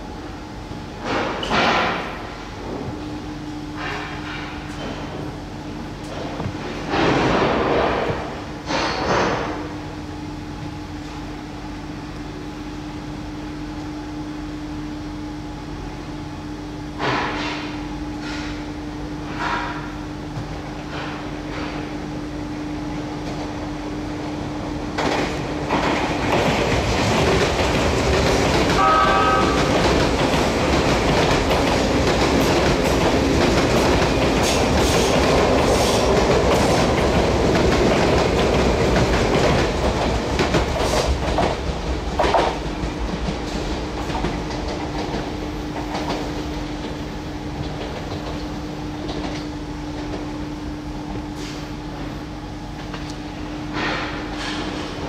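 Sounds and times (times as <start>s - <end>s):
train wheels clacking over rail joints: 3.8s - 5.3s, 6.0s - 9.7s, 24.9s - 47.0s, 53.7s - 55.0s
electric train running: 25.0s - 49.4s.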